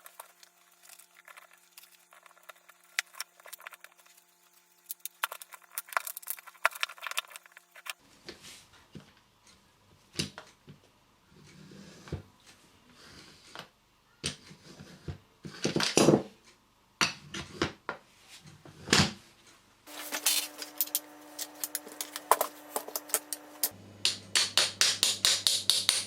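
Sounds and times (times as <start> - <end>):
small hard objects clattering: 0.0 - 8.0, 19.9 - 23.8
steady hum: 19.9 - 26.0.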